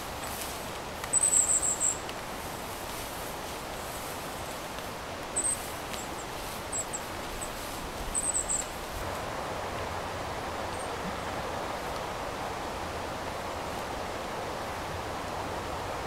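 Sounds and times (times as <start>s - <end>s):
outdoor rustling hiss: 0.0s - 16.0s
high bird chirps: 1.1s - 2.0s, 5.4s - 5.6s, 8.1s - 8.7s.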